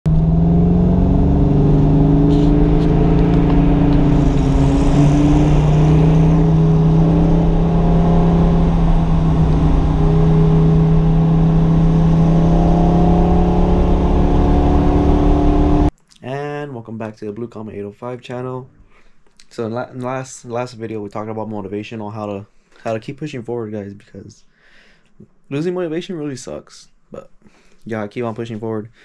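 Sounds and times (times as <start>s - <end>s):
car engine running loudly: 0.1s - 15.9s.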